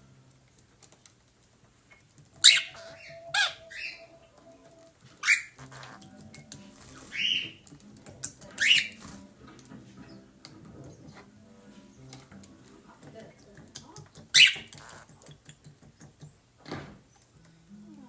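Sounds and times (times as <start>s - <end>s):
budgerigar squawking: 2.4s - 4.2s, 5.2s - 6.1s, 6.8s - 7.6s, 8.4s - 9.3s, 14.3s - 15.1s.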